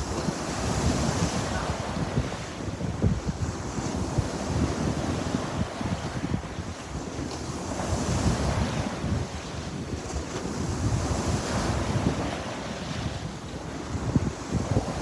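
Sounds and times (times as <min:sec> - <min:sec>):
sea waves breaking on shore: 0:00.0 - 0:15.0
wind buffeting microphone: 0:00.0 - 0:15.0.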